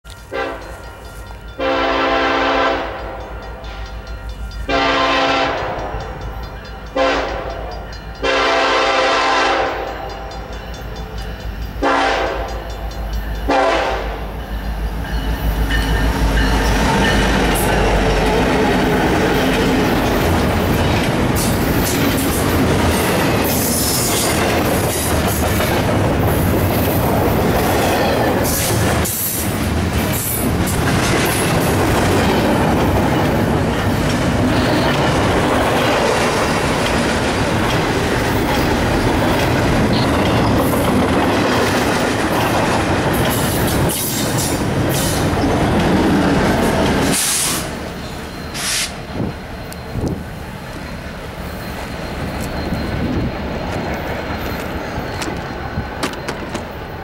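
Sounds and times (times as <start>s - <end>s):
locomotive engines rumbling: 0.1s - 57.0s
locomotive horn blasts: 0.3s - 0.8s, 1.5s - 3.8s, 4.7s - 5.9s, 6.9s - 10.3s, 11.8s - 12.6s, 13.5s - 14.2s
train wheels clattering on rail: 2.9s - 57.0s.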